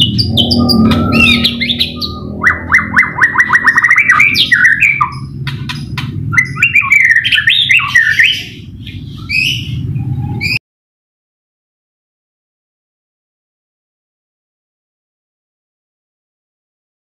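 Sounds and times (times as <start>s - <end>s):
bird singing whistled phrases: 0.0s - 5.3s, 6.3s - 10.6s.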